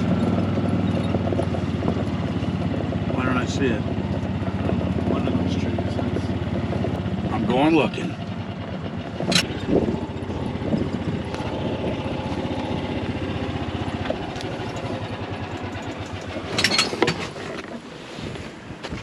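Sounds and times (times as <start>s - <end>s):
golf cart engine running: 0.0s - 19.0s
brief rattle: 13.8s - 17.6s.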